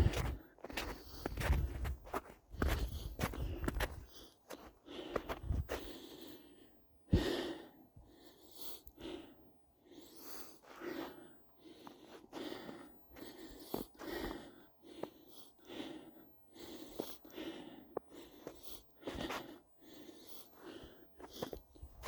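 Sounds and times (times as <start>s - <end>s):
footsteps crunching in snow: 0.0s - 5.8s
person breathing hard: 0.0s - 22.0s.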